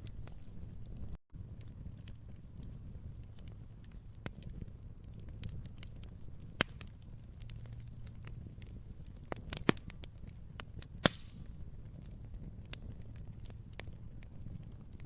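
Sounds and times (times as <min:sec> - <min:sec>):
low steady rumble: 0:00.0 - 0:15.0
wood fire crackling: 0:00.0 - 0:15.0.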